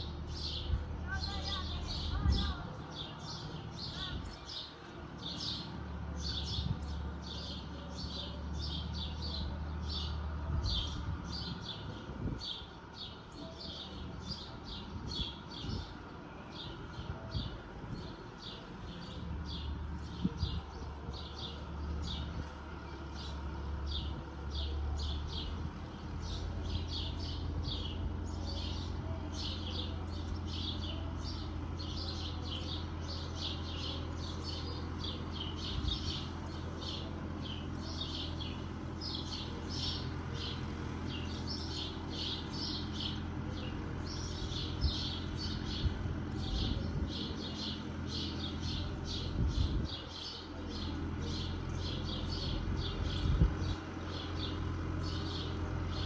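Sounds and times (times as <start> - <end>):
distant tractor engine drone: 0.0 - 56.0
small birds chirping: 0.0 - 56.0.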